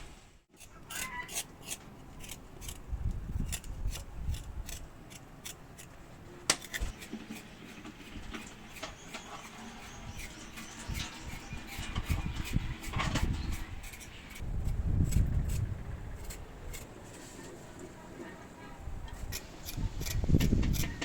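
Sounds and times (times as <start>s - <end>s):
spoon scraping against a pot: 6.6s - 14.4s.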